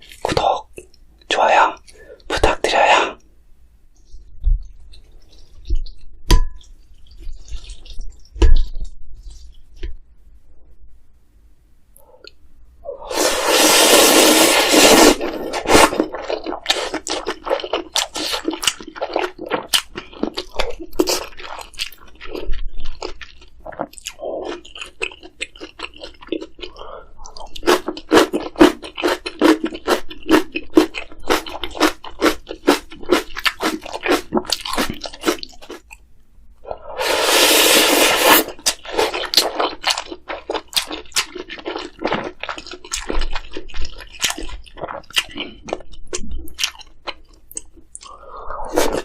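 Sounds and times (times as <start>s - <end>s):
noodles slurping: 13.0s - 20.3s, 36.9s - 43.2s
crunchy chewing: 13.3s - 36.0s, 37.1s - 49.0s.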